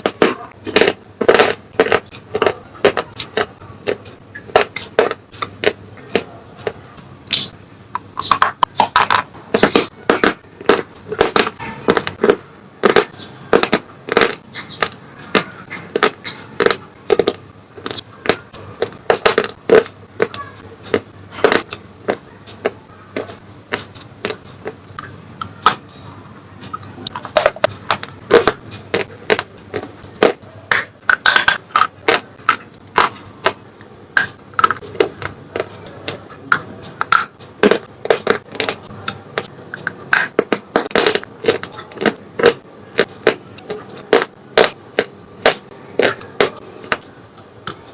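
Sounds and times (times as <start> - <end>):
slate pencils crunching in mouth: 0.0 - 47.9.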